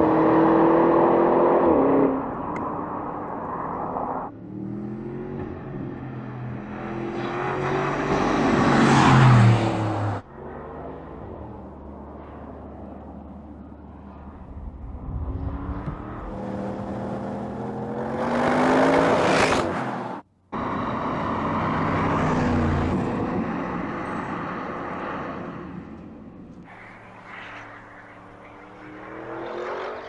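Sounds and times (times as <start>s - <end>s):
car engine accelerating: 13.4s - 23.2s.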